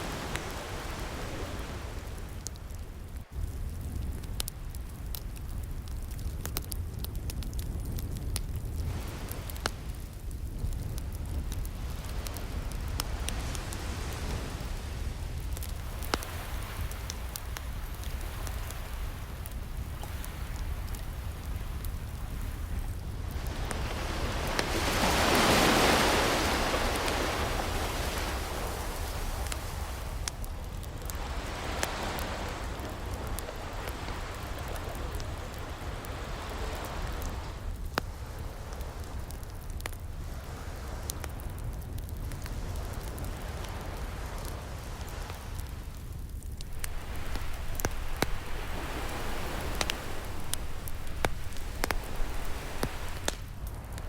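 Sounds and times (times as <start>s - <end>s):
ocean waves washing in: 0.0s - 3.6s, 11.6s - 37.8s, 42.8s - 54.0s
wood fire crackling and popping: 0.0s - 54.0s.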